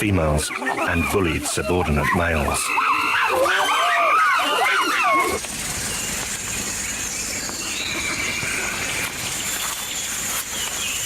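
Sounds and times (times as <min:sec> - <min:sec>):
drawn-out rising falling call: 0:02.2 - 0:05.4.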